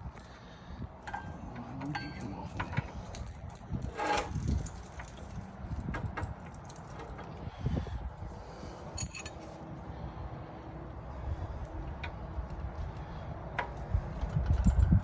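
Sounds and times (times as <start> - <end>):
steady low rumble: 0.0 - 15.0
metallic clinks of hand tools: 8.9 - 9.4.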